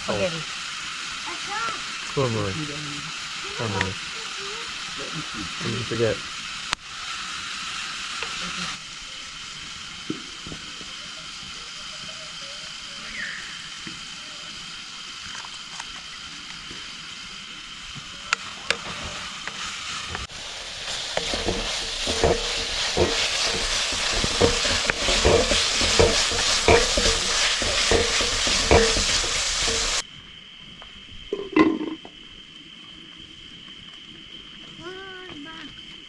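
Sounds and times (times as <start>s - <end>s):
food sizzling in a pan: 0.0s - 30.1s
utensil knocking against pan: 20.9s - 30.0s.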